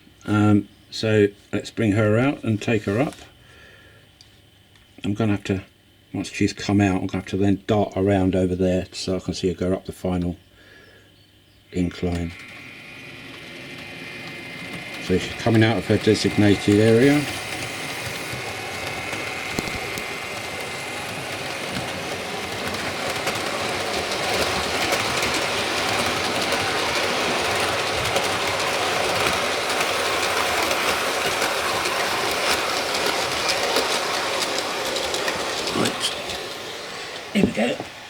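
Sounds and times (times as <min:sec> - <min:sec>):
model train motor whine: 0:11.8 - 0:38.0
train wheels rumbling on rails: 0:11.8 - 0:38.0.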